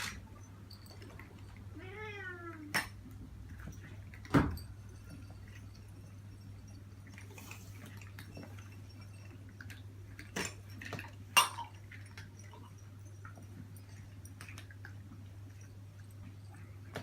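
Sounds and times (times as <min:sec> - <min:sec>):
steady low hum: 0:03.0 - 0:14.4
dishes and utensils clinking: 0:03.6 - 0:12.7.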